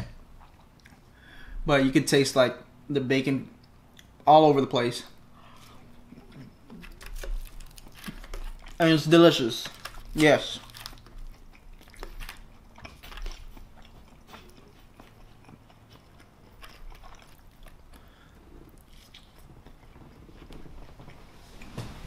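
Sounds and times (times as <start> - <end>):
person chewing: 0.4 - 1.2, 5.4 - 8.9, 9.6 - 21.7.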